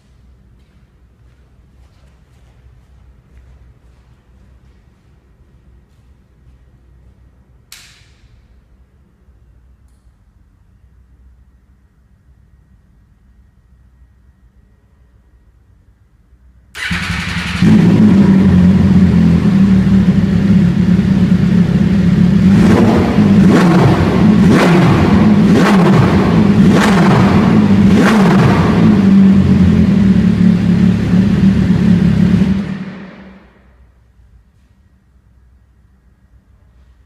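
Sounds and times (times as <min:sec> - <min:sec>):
motorcycle engine starting: 0:16.7 - 0:33.7
motorcycle engine idling: 0:16.8 - 0:33.7.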